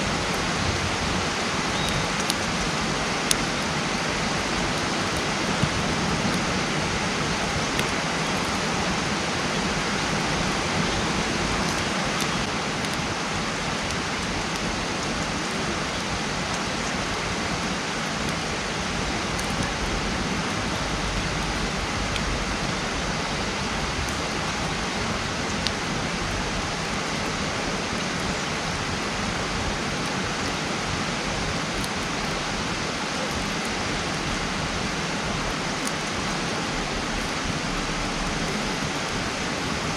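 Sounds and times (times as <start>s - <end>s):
campfire crackling: 0.0s - 39.9s
fire popping: 0.1s - 27.3s.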